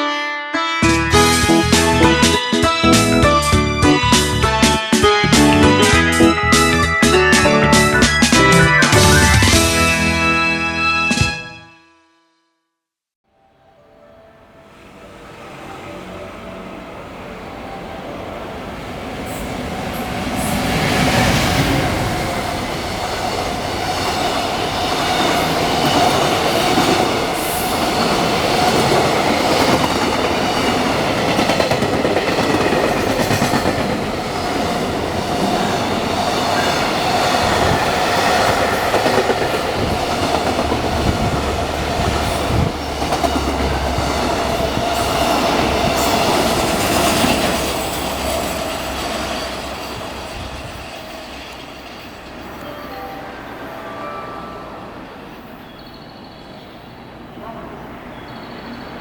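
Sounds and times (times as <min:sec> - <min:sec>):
freight train wheels on rails: 0:14.6 - 0:59.0.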